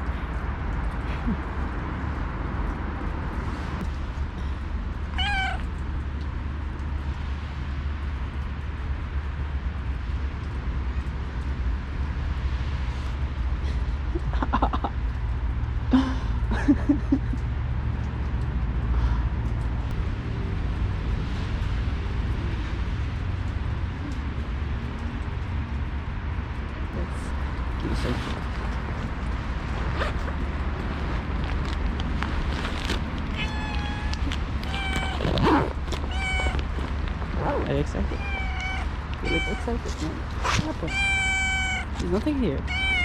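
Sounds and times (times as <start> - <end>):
low background rumble: 0.0 - 43.0
cat meowing: 5.1 - 5.7, 33.3 - 42.0, 42.6 - 43.0.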